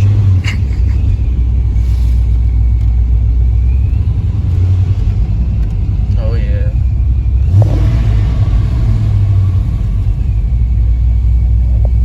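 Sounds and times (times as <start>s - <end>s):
car engine rumbling at low revs: 0.0s - 12.0s.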